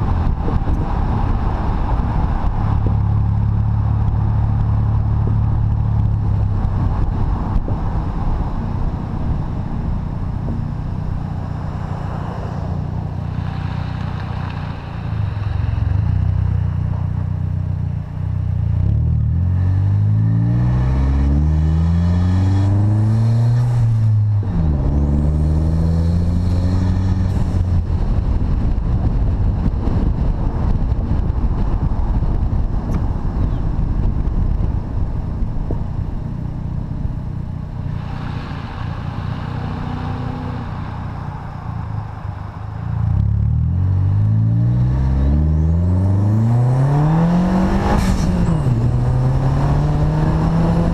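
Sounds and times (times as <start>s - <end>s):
car engine accelerating: 18.6s - 29.4s, 37.0s - 50.9s.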